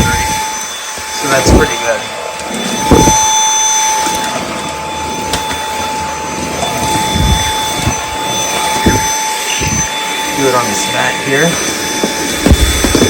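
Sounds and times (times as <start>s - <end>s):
vacuum cleaner motor whine: 0.0s - 13.0s
vacuum head thumps: 2.8s - 3.4s.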